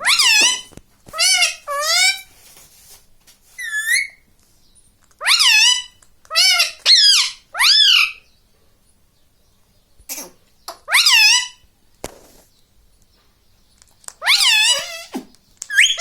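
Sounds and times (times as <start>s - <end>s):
parrot calling: 0.0s - 2.3s, 3.6s - 4.2s, 5.2s - 8.3s, 10.1s - 11.6s, 14.2s - 16.0s.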